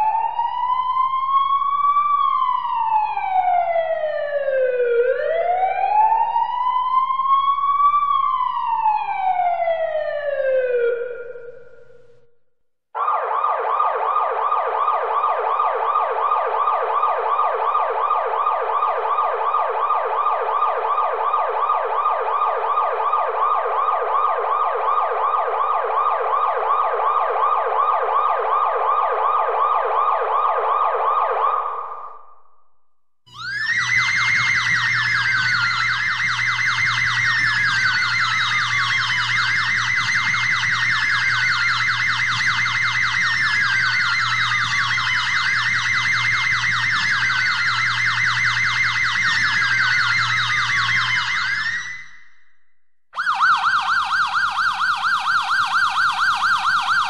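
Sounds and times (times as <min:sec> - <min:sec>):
siren wailing: 0:00.0 - 0:12.2, 0:13.0 - 0:32.2, 0:33.3 - 0:52.4, 0:53.2 - 0:57.0
siren yelping: 0:00.0 - 0:12.2, 0:13.0 - 0:32.1, 0:33.3 - 0:52.3, 0:53.2 - 0:57.0.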